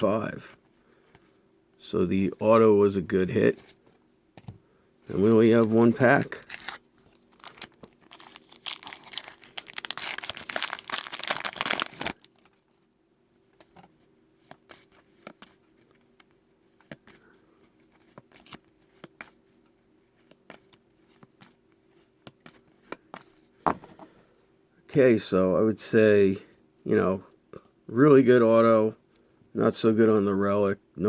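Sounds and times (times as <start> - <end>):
foil wrapper tearing and crinkling: 5.8 - 12.6.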